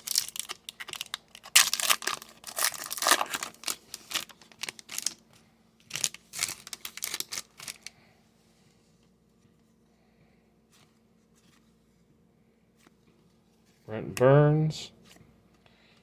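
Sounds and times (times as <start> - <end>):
wrapper tearing and crinkling: 0.0 - 5.2, 5.9 - 7.9.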